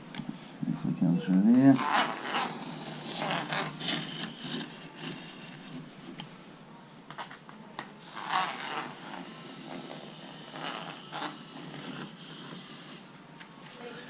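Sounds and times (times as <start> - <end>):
knife scraping and cutting foam: 1.8 - 5.8, 8.1 - 13.1.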